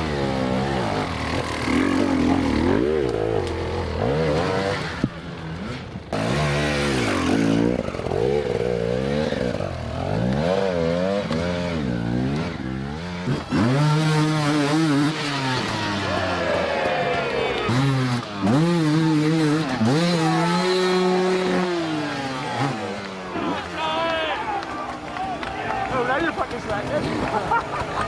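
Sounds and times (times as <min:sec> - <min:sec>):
motorcycle engines revving: 0:00.0 - 0:28.0.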